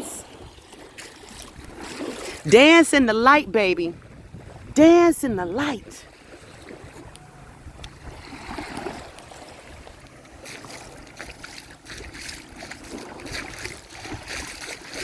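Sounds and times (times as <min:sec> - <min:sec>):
wind rumbling on microphone: 0:03.8 - 0:15.0.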